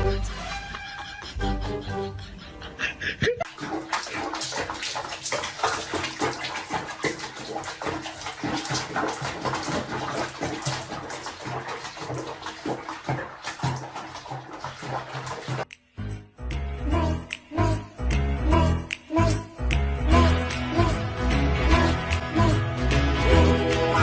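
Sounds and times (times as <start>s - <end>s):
water splashing and running: 3.4s - 15.7s.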